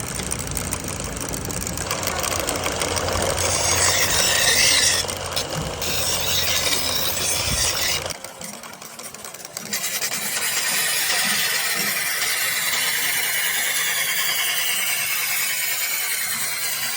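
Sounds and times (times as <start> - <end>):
metalworking machinery rattling: 0.0 - 16.9.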